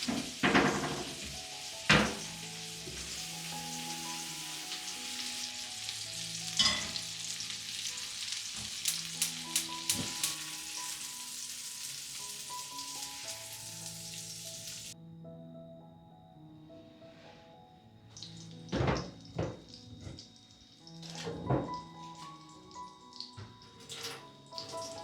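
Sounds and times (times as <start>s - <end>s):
food sizzling in frying pan: 0.0s - 15.0s, 18.2s - 25.0s.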